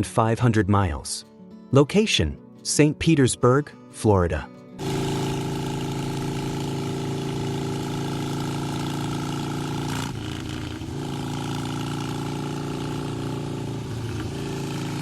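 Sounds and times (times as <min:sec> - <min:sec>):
motorcycle engine running: 0:04.8 - 0:15.0.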